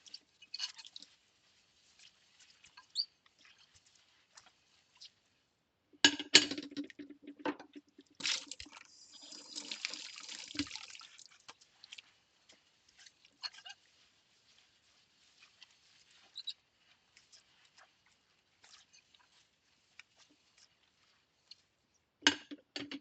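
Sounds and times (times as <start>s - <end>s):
sponge squishes: 0.0s - 6.0s, 6.8s - 22.6s
running water splashing: 7.8s - 21.7s.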